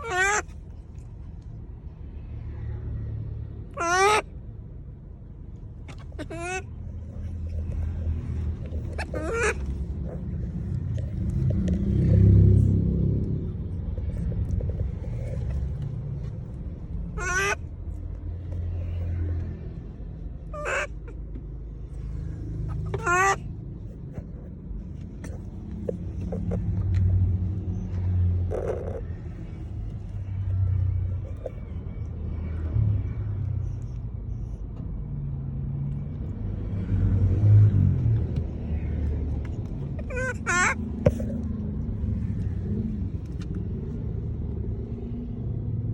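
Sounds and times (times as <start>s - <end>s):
monkey high-pitched calls: 0.0s - 0.5s, 3.8s - 4.3s, 6.0s - 7.3s, 8.8s - 10.2s, 17.1s - 17.6s, 20.5s - 21.2s, 22.7s - 23.5s, 28.5s - 29.1s, 39.9s - 41.4s.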